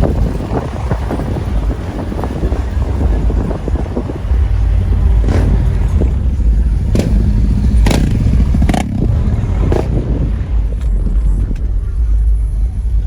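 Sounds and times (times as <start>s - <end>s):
car engine rumble: 0.0s - 13.0s.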